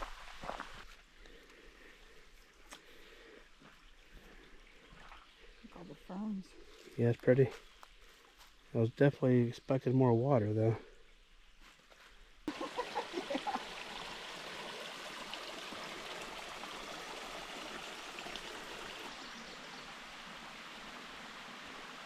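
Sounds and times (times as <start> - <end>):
creek water running over rocks: 0.0 - 1.2, 2.0 - 8.8, 12.5 - 22.0.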